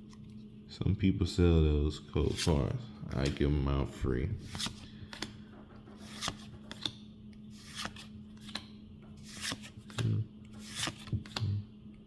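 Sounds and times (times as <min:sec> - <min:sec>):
steady low hum: 0:00.0 - 0:12.0
trading cards sliding by hand: 0:04.4 - 0:11.6.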